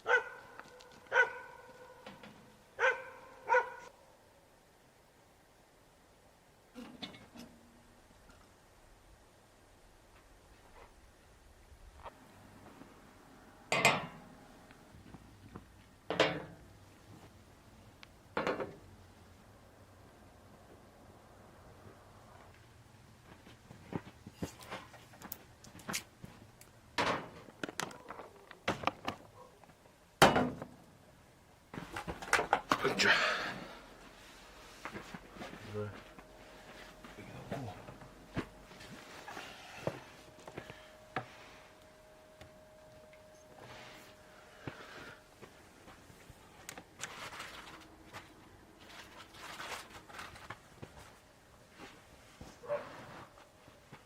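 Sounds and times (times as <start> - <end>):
camping gear rustling and clicking: 45.9 - 53.4.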